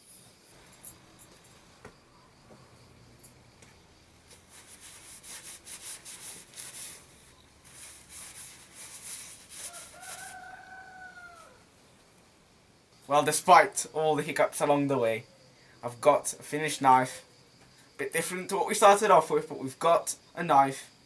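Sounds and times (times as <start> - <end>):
hand sanding strokes: 4.3 - 10.4
rooster crowing: 9.5 - 11.7.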